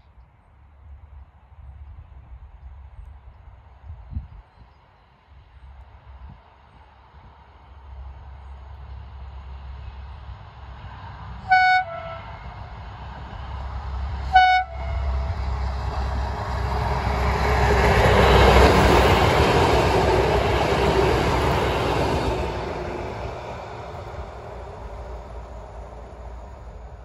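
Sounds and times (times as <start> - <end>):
diesel engine of passing railcar: 5.0 - 27.0
two-tone train horn blasts: 11.4 - 12.6, 14.3 - 15.4
train wheels on rails: 12.3 - 27.0.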